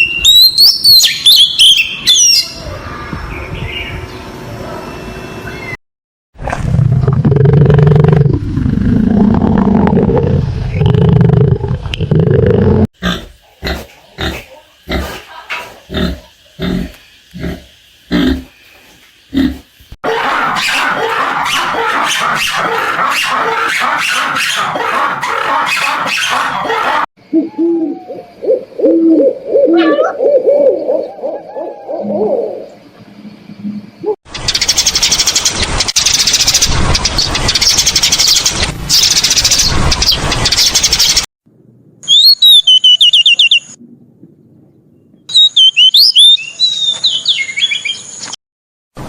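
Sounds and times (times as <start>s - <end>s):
rhythmic noisy animal pulses: 6.8s - 18.6s, 19.3s - 27.1s
short low hooting calls: 19.3s - 28.5s
small bird singing: 45.0s - 48.4s.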